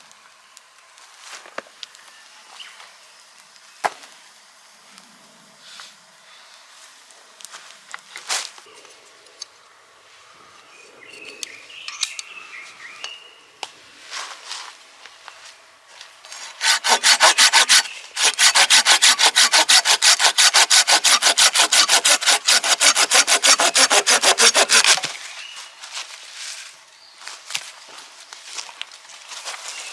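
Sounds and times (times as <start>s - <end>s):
hand saw cutting wood: 16.3s - 25.2s.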